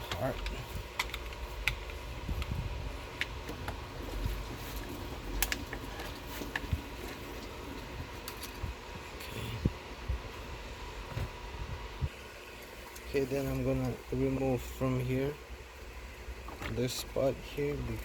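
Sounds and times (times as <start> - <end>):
plastic and metal parts clicking: 0.0 - 2.5.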